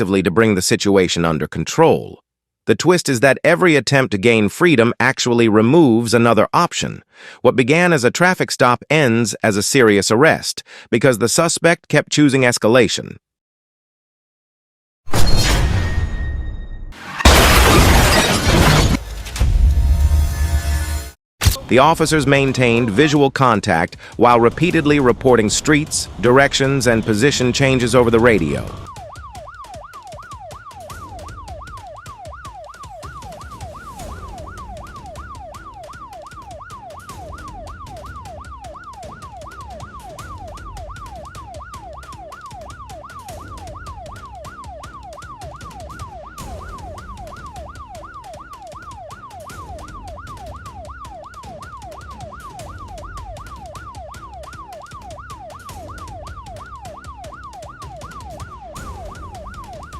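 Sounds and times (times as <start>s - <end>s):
police siren yelping: 24.2s - 59.9s.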